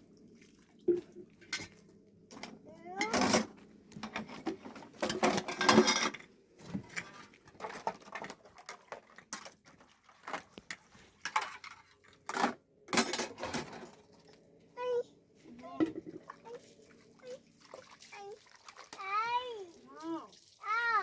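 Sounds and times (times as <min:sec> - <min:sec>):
household objects clinking and scraping: 0:01.4 - 0:14.4.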